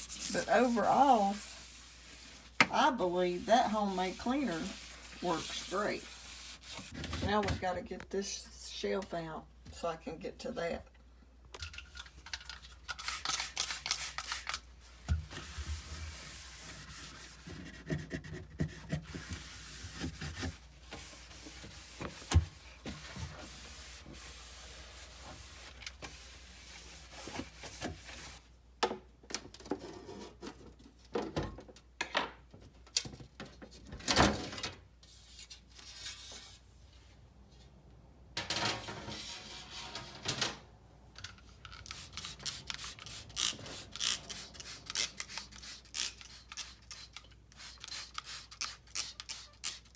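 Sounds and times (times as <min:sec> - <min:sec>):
shelf rubbing and scraping: 0:00.0 - 0:07.4, 0:15.3 - 0:28.4, 0:38.8 - 0:40.4.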